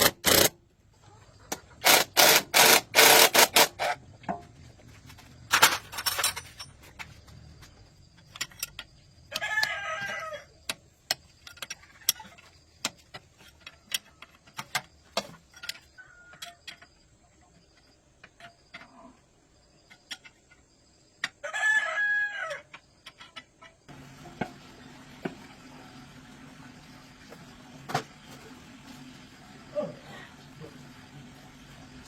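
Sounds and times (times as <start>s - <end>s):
rooster crowing: 9.3s - 10.5s, 21.4s - 22.7s.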